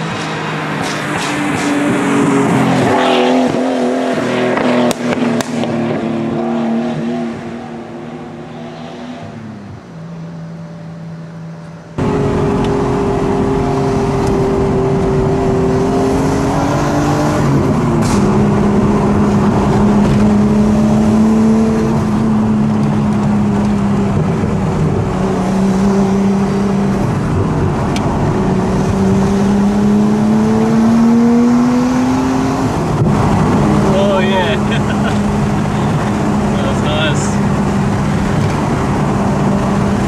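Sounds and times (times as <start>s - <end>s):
car engine accelerating through gears: 0.0s - 10.3s, 11.9s - 40.0s
exhaust cracks: 17.5s - 20.6s.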